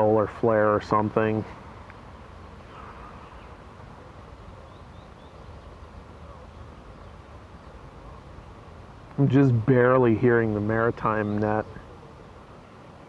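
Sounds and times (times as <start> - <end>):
steady low outdoor noise: 0.0 - 13.0.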